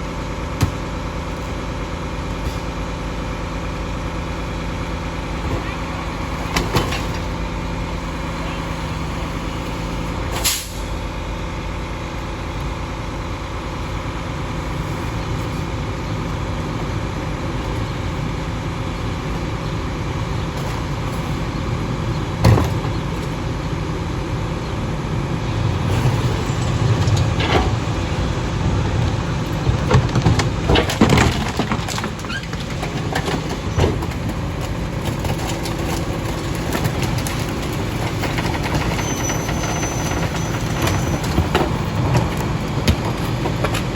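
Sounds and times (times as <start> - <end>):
garbage truck engine running: 0.0 - 43.9
bangs and clatters from truck: 5.4 - 7.4, 22.2 - 23.4, 25.7 - 43.9.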